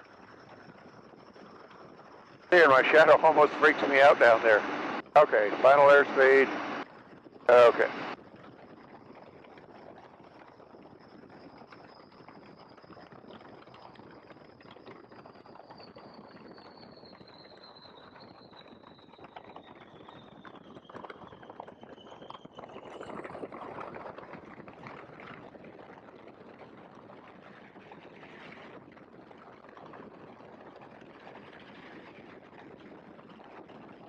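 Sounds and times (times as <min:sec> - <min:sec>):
biplane engine and wind rush: 0:00.0 - 0:34.0
high whine falling in pitch: 0:02.5 - 0:06.9, 0:07.5 - 0:08.2
loud rumble: 0:02.6 - 0:06.8, 0:07.5 - 0:08.2.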